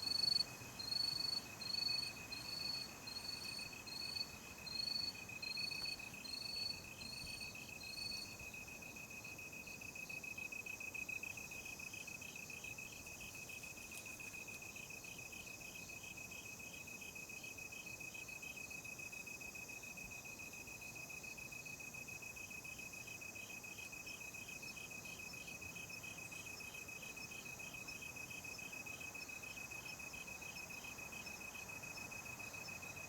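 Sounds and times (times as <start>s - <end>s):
higher insect chirp: 0.0s - 17.9s.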